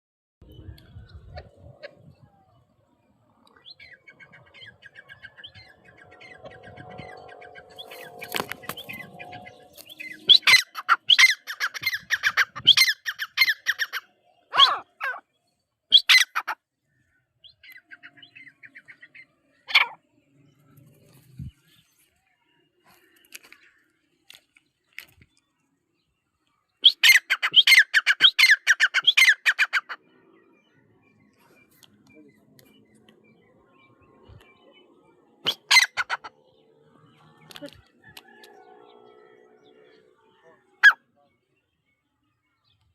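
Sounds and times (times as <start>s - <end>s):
shrill repeated bird calls: 3.5s - 15.3s, 15.9s - 20.1s, 26.7s - 42.8s.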